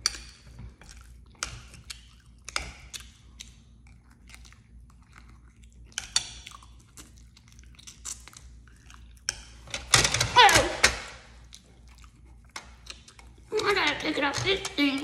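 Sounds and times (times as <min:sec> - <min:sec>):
person chewing soft food: 0:00.0 - 0:09.7, 0:11.3 - 0:13.6.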